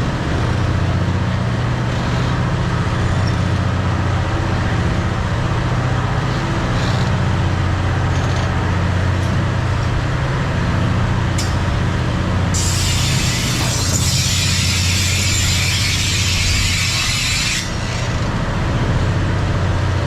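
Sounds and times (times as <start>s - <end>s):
train engine drone: 0.0s - 20.0s
loud hiss: 12.5s - 18.1s.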